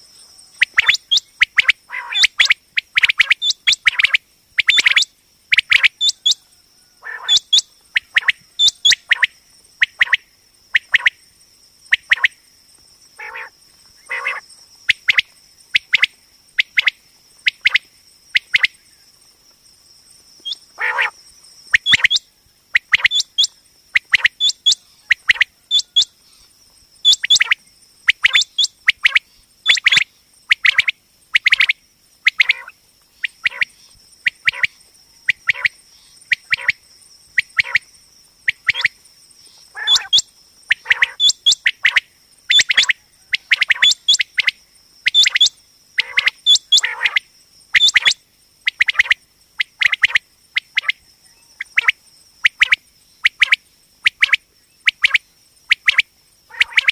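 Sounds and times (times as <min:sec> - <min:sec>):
quail calling: 0:00.6 - 0:10.2, 0:13.2 - 0:14.4, 0:20.4 - 0:22.2, 0:22.8 - 0:26.1, 0:27.0 - 0:33.7, 0:34.3 - 0:36.8, 0:37.4 - 0:37.9, 0:38.5 - 0:38.9, 0:39.6 - 0:44.5, 0:45.1 - 0:47.2, 0:47.8 - 0:50.2, 0:53.4 - 0:56.9.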